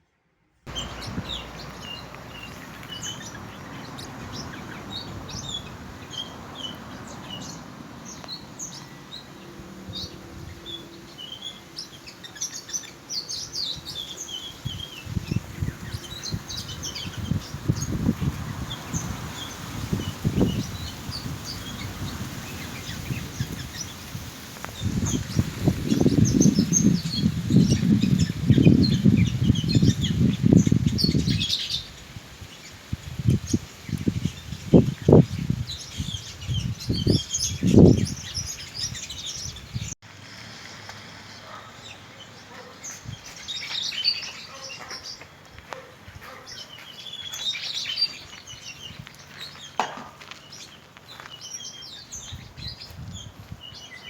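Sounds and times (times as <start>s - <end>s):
parrots chirping: 0.7s - 7.5s.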